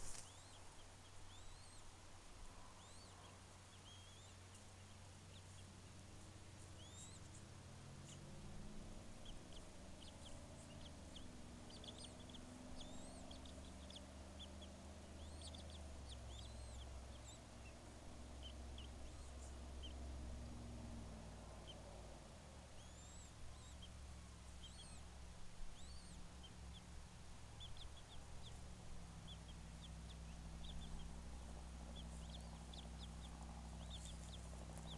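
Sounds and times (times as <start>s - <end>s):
steady low rumble: 3.8s - 34.9s
high-pitched bird chirps: 6.8s - 7.2s, 15.2s - 17.4s, 22.8s - 23.9s, 24.6s - 25.0s, 25.8s - 26.2s.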